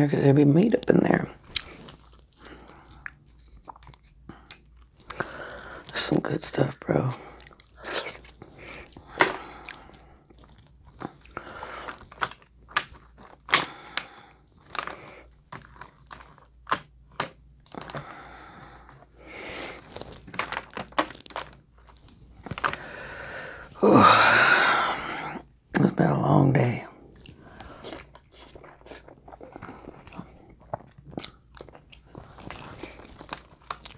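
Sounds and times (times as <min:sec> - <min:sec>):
chewing: 0:01.4 - 0:05.9, 0:07.3 - 0:18.2, 0:27.1 - 0:33.9
crab shells cracking: 0:07.3 - 0:19.0, 0:19.8 - 0:23.2, 0:27.2 - 0:33.9.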